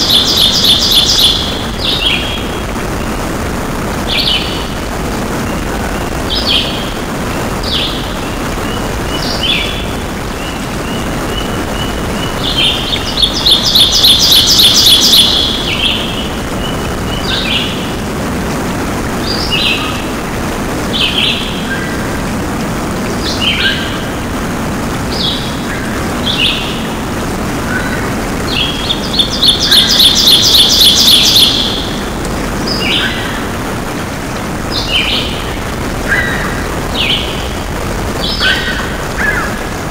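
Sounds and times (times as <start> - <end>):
loud trilled bird song: 0.0 - 2.6, 4.0 - 4.8, 6.3 - 7.0, 7.6 - 18.0, 19.2 - 20.1, 20.9 - 22.0, 23.2 - 24.2, 25.0 - 27.0, 27.6 - 33.6, 34.7 - 37.6, 38.2 - 39.6
birds chirping and calling: 0.0 - 3.2, 3.9 - 18.1, 19.1 - 22.3, 23.0 - 24.4, 25.0 - 39.9
steady background noise: 0.0 - 39.9.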